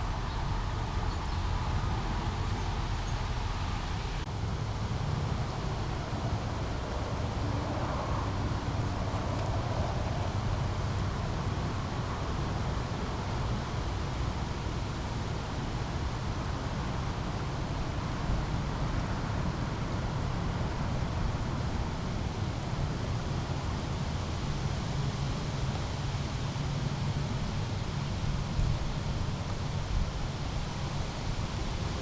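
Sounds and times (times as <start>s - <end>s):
brook flowing: 0.0s - 32.0s.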